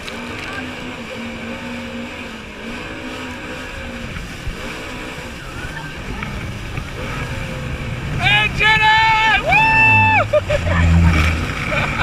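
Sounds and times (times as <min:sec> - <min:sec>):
jet ski engine running: 0:00.0 - 0:12.0
rush of wind and water: 0:00.0 - 0:12.0.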